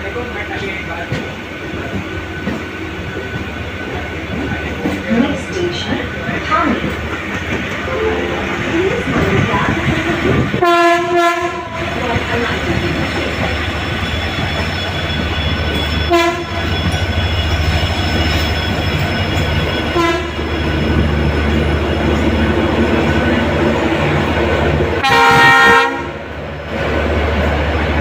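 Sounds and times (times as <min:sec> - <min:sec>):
train motors and wheels rumbling: 0:00.0 - 0:28.0
train horn blasts: 0:10.6 - 0:11.8, 0:16.1 - 0:16.6, 0:20.0 - 0:20.4, 0:25.0 - 0:26.2.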